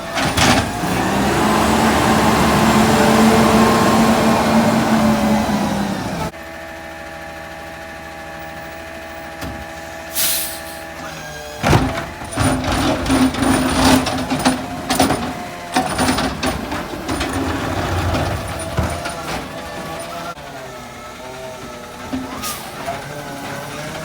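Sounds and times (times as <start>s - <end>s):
clanking and banging: 0.0s - 1.6s, 11.6s - 20.4s, 21.4s - 24.0s
garbage truck engine humming: 0.0s - 24.0s
short air hiss: 10.1s - 10.8s.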